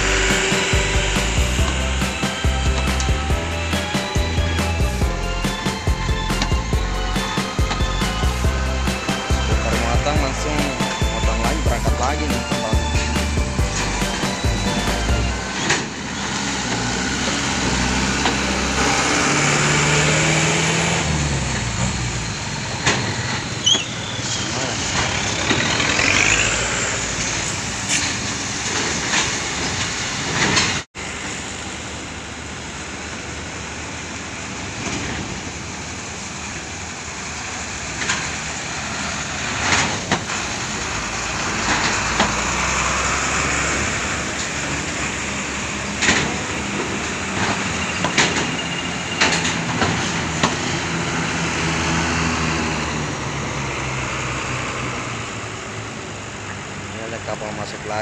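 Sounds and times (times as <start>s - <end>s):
heavy vehicle engines running: 0.0s - 58.0s
sharp knocks and clanks: 41.5s - 42.6s, 45.9s - 50.8s.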